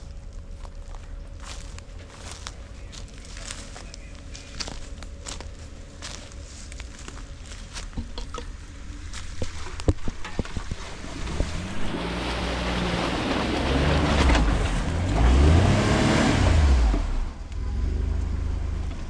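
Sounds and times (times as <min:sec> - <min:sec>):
jeep engine revving: 0:10.8 - 0:19.0.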